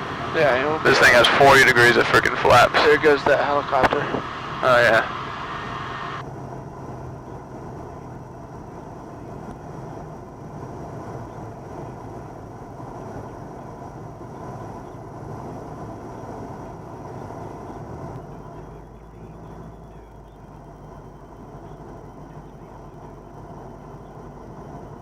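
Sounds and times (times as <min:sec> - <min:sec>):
air noise: 0:00.0 - 0:25.0
aircraft engine running: 0:00.0 - 0:25.0.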